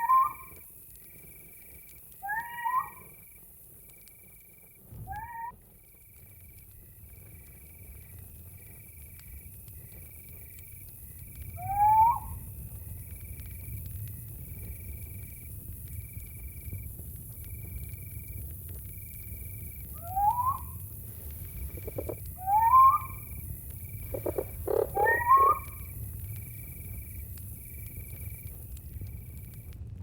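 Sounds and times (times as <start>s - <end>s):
night animal calls rising in pitch: 0.0s - 0.6s, 2.2s - 3.2s, 5.0s - 5.6s, 11.6s - 12.4s, 19.9s - 20.8s, 21.6s - 26.0s
high insect hiss: 0.0s - 29.7s
crickets chirping: 0.0s - 29.8s
low rumble: 12.3s - 30.0s.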